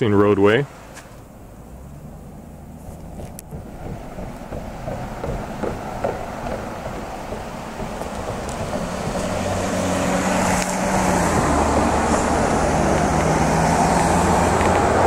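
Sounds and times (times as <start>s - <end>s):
highway traffic rushing: 0.0s - 15.0s
vehicle engine and tyres: 0.0s - 15.0s.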